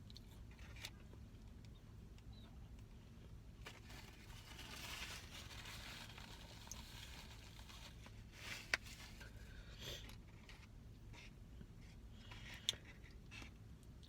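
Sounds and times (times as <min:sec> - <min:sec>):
paper packaging rustling: 0:03.6 - 0:09.3.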